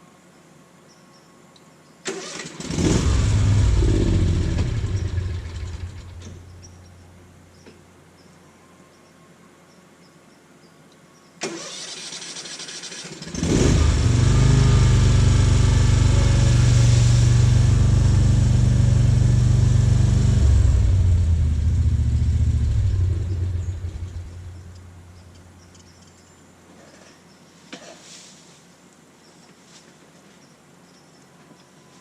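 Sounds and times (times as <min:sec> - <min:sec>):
electric starter cranking engine: 0:02.1 - 0:06.4, 0:11.4 - 0:21.0
small gasoline engine running: 0:02.1 - 0:06.4, 0:11.5 - 0:24.9.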